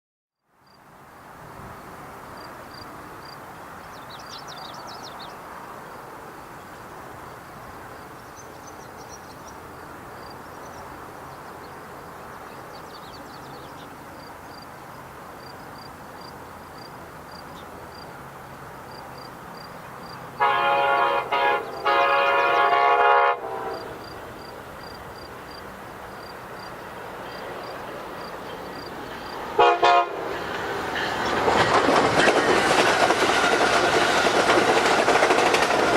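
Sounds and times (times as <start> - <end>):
train rumble: 0.9 - 35.9
locomotive air horn blasts: 20.4 - 24.0, 29.6 - 30.3.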